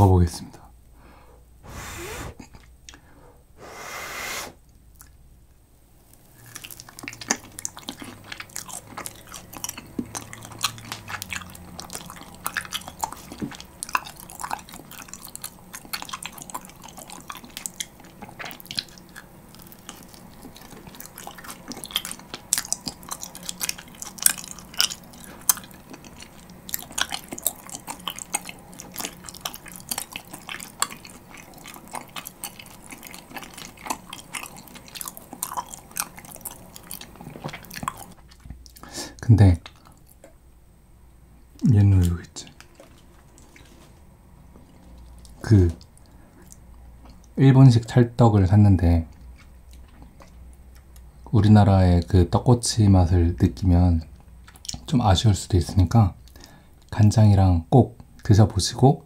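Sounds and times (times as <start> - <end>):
person blowing on food: 1.6 - 2.5, 3.6 - 4.6
chewing sticky rice cake: 4.9 - 5.2, 6.1 - 40.4, 41.6 - 59.0.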